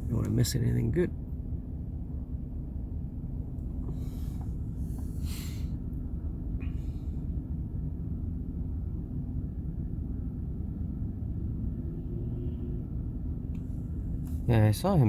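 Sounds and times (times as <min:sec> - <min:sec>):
van engine idling: 0:00.0 - 0:11.8.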